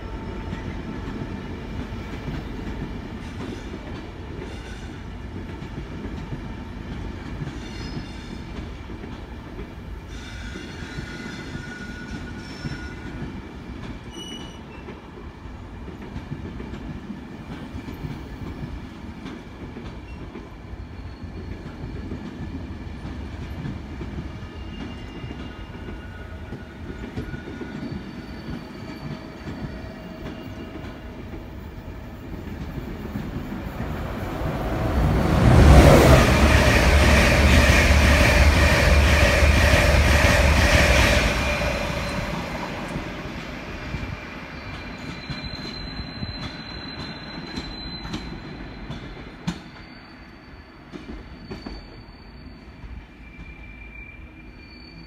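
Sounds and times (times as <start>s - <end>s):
train rumbling past: 0.0s - 55.0s.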